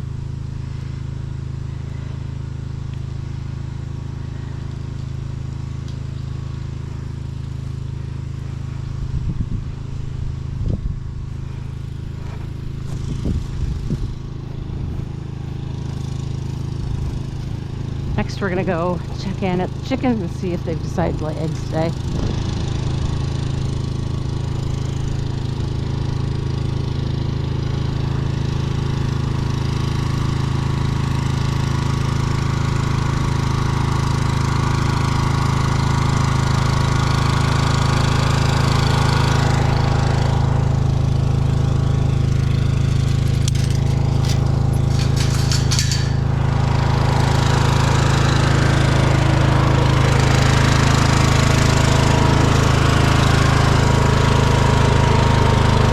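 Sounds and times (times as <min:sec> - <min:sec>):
small engine running: 0:00.0 - 0:55.9
rattling: 0:42.4 - 0:46.8.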